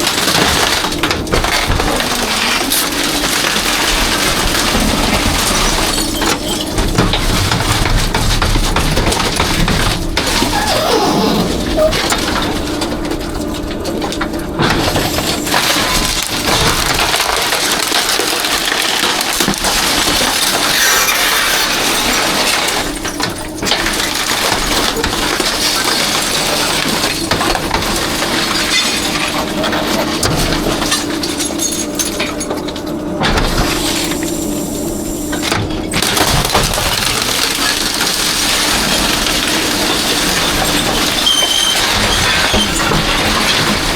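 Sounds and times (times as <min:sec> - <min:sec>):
trash crackling and breaking: 0:00.0 - 0:34.2, 0:35.5 - 0:43.9
hydraulics humming: 0:09.9 - 0:13.0.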